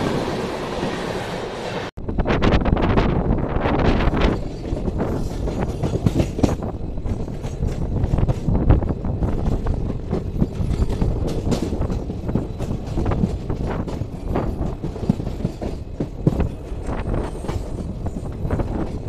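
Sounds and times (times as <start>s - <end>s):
train coaches rumbling: 0.0s - 19.0s
wheels clacking over rail joints: 4.1s - 19.0s.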